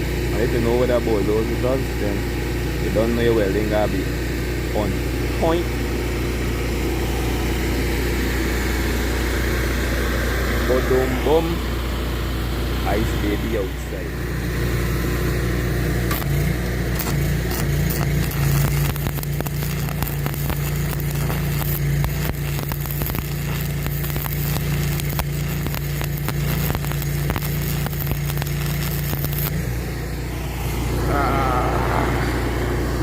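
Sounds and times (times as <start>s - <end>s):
generator engine humming: 0.0s - 33.0s
arc welding crackle: 12.6s - 32.0s.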